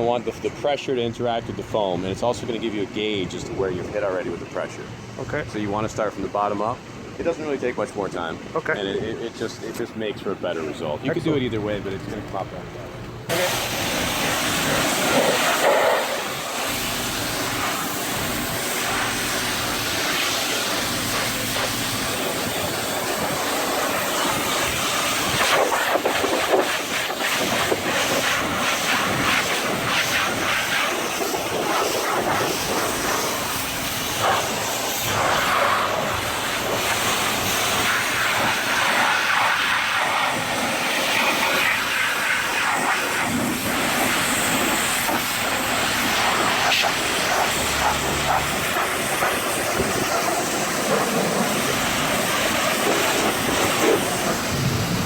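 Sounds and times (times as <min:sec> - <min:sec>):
pressure washer spray hissing: 0:13.3 - 0:55.0.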